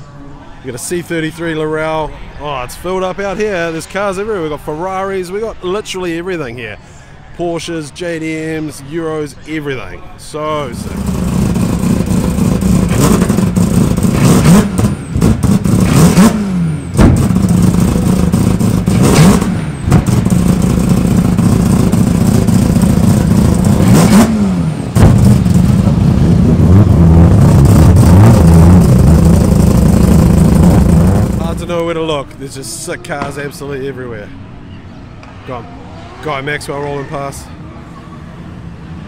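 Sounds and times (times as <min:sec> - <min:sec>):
car engine revving: 0:10.6 - 0:33.3.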